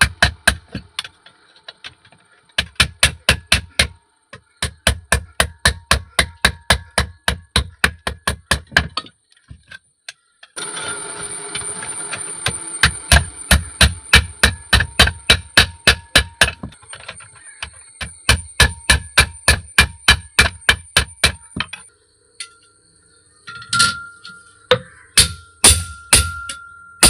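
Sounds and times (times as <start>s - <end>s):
hammer blows on metal: 23.6s - 27.0s.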